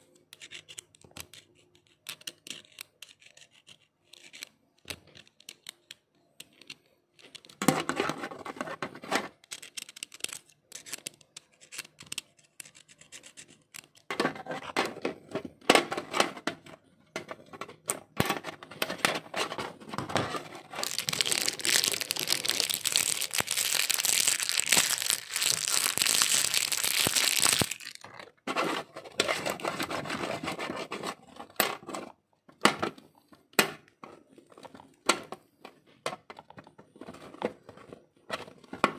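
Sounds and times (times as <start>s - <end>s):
plastic rustling and crinkling: 18.2s - 31.2s
plastic tearing: 20.2s - 28.3s.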